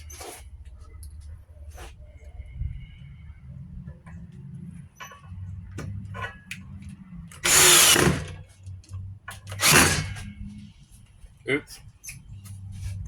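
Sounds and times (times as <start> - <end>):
power drill running: 7.4 - 8.4, 9.5 - 10.2.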